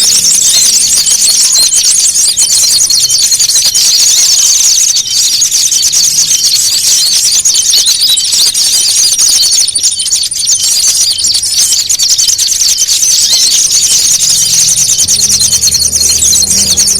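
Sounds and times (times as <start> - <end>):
songbirds chattering: 0.0 - 16.9.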